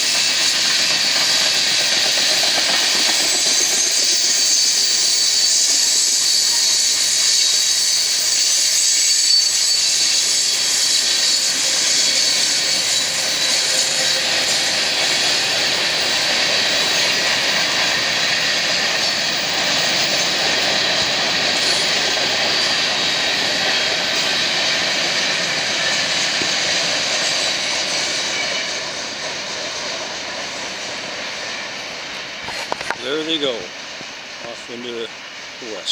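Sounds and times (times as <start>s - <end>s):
freight train rolling past: 0.0s - 35.9s.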